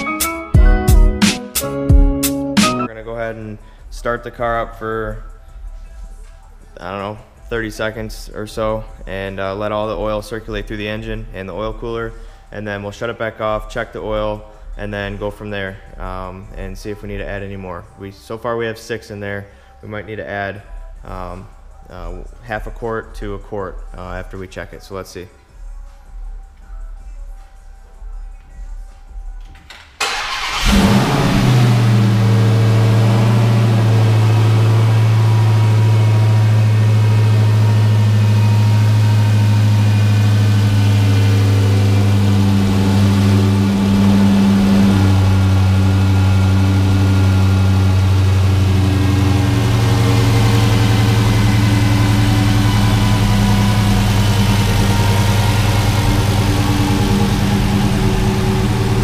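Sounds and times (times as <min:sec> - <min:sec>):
car engine starting and idling: 0:29.4 - 0:59.0.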